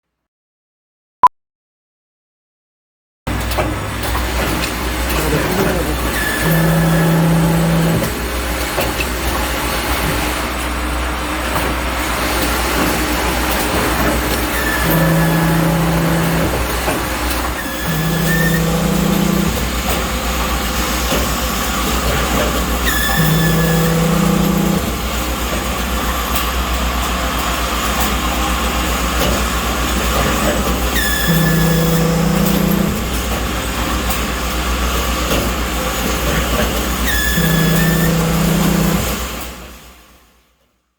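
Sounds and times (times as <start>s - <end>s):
riveting machine: 3.3s - 39.9s
low machine hum: 4.8s - 8.6s, 13.2s - 21.5s, 22.6s - 25.7s, 30.6s - 33.9s, 36.7s - 39.2s.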